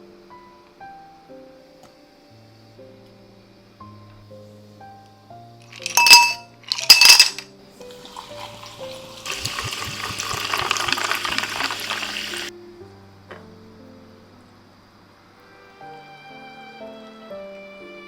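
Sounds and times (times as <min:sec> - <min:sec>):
soft piano music: 0:00.0 - 0:05.8, 0:07.5 - 0:18.0
drink pouring: 0:05.7 - 0:12.5
ice cubes clinking in a glass: 0:05.7 - 0:12.5.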